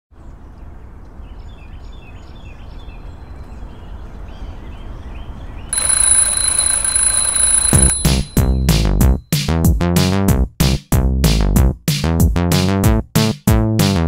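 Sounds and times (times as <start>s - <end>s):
alarm clock ringing: 5.7s - 8.9s.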